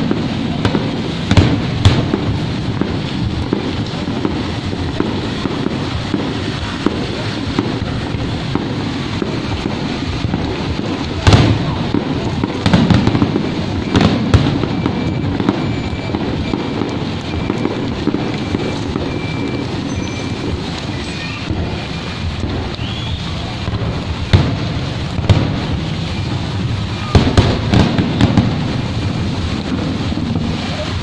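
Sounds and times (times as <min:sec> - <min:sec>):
fireworks bangs: 0:00.0 - 0:31.0
rain hiss: 0:00.0 - 0:31.0.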